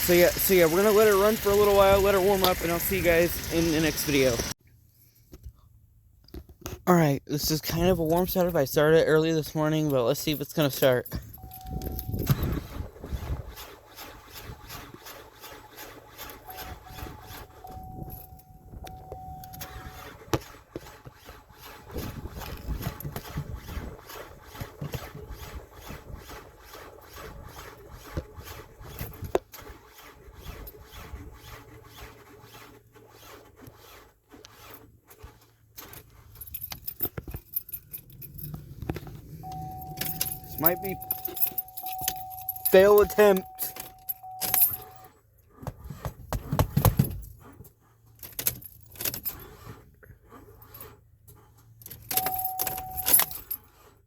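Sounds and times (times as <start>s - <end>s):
car starter cranking: 7.7s - 31.0s, 32.8s - 45.6s, 46.9s - 54.0s
warning chime: 16.5s - 19.8s, 39.4s - 45.0s, 52.1s - 53.4s.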